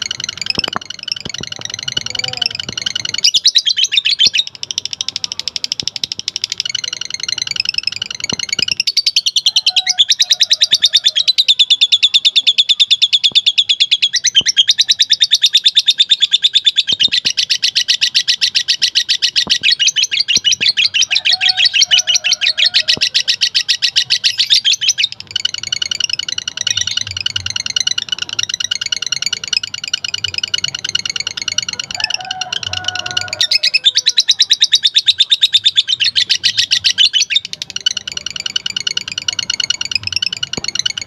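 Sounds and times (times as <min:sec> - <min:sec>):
lovebird chattering trill: 0:00.0 - 0:41.0.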